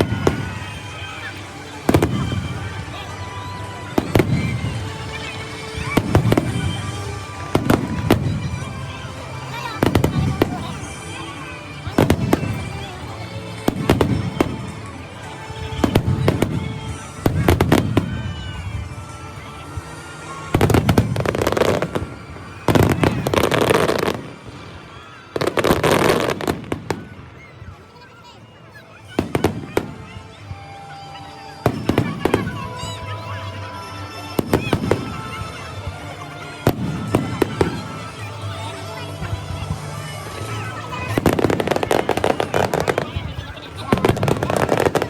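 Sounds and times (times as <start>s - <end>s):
fireworks bangs: 0.0s - 27.8s, 29.0s - 30.8s, 31.5s - 33.5s, 34.1s - 45.0s.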